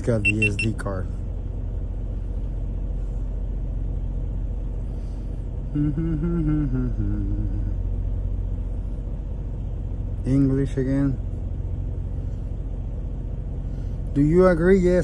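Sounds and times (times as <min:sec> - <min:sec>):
steady low rumble: 0:00.0 - 0:15.0
short wavering hum: 0:01.9 - 0:10.2.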